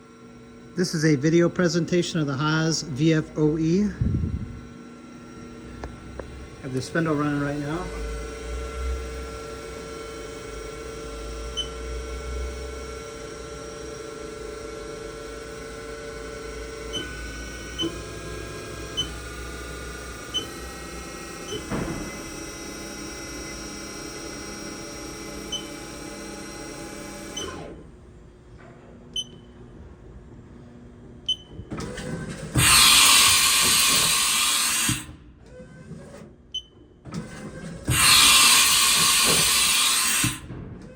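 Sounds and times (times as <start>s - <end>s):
spindle whine: 0.0s - 12.0s
quiet machine hum: 0.0s - 40.9s.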